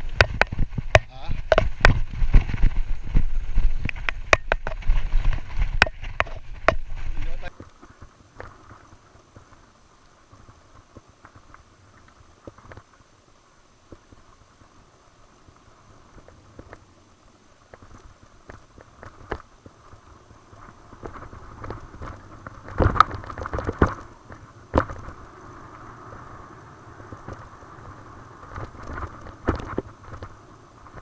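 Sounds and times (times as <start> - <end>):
bike knocking over bumps: 0.0 - 9.6, 17.7 - 26.4, 27.0 - 31.0
bike rattles and clicks: 0.0 - 13.2, 15.4 - 31.0
bike tyres rolling on dirt: 0.0 - 31.0.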